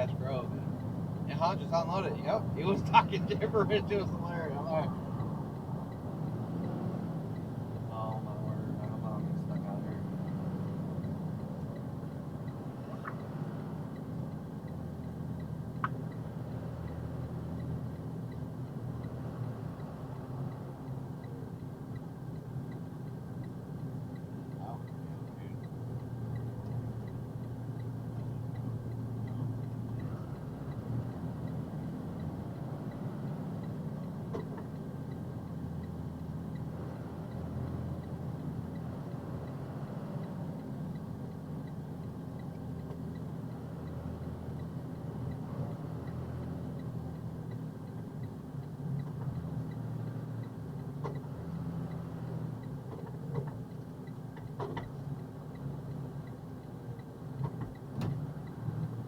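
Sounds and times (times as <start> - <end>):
diesel truck engine droning: 0.0 - 59.0
faint clicks: 11.0 - 13.3, 40.2 - 59.0.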